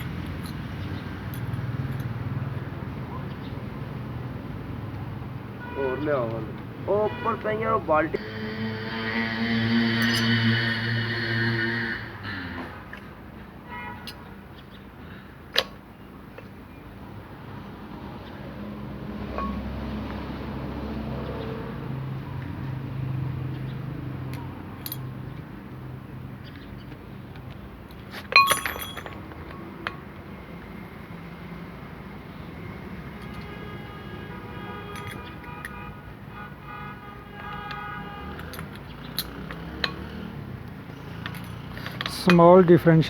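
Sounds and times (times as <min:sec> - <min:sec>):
light metallic clinks: 0:00.0 - 0:02.2, 0:19.3 - 0:19.7, 0:24.3 - 0:25.1, 0:27.9 - 0:30.0, 0:34.8 - 0:35.8, 0:38.4 - 0:40.2, 0:41.1 - 0:42.7
workshop background noise: 0:38.5 - 0:43.0.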